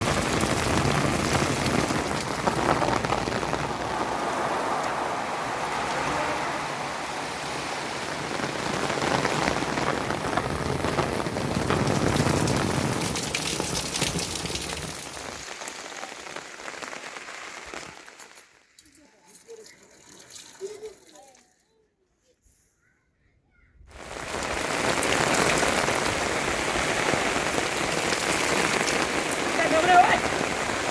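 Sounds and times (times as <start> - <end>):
heavy rain falling: 0.0 - 18.7, 23.9 - 30.9.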